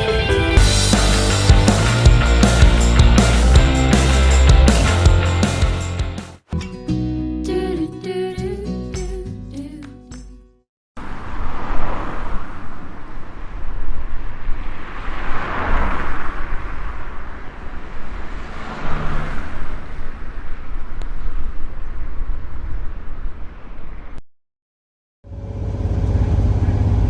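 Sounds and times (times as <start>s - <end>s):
road traffic rumble: 0.6s - 6.2s, 11.0s - 21.2s
vehicles passing: 0.6s - 6.2s, 11.0s - 22.0s.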